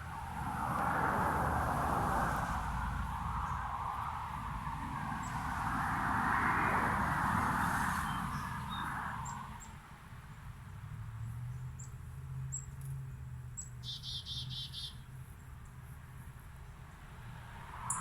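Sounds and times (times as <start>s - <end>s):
small birds chirping: 11.5s - 15.8s
bird trill: 13.6s - 15.0s.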